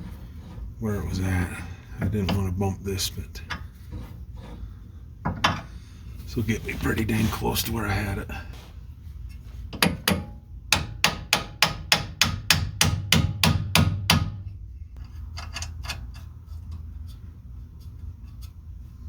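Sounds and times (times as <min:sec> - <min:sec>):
hammer striking metal: 0:09.8 - 0:14.5.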